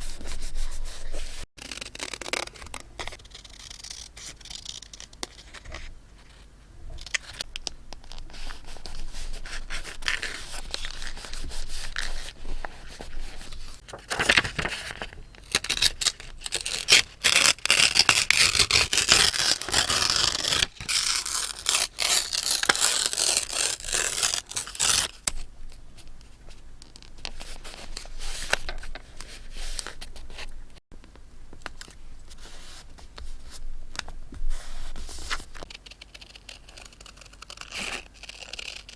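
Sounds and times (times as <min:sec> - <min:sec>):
paper scraping and rustling: 0:08.1 - 0:15.9.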